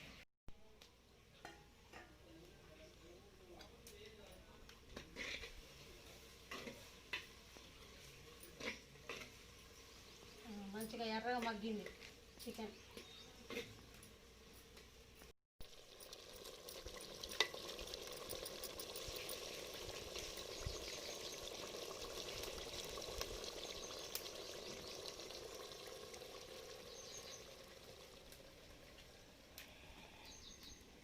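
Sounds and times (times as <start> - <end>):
chicken sizzling in a pan: 5.0 - 11.2, 15.6 - 29.7
spoon stirring against pan: 6.4 - 9.5.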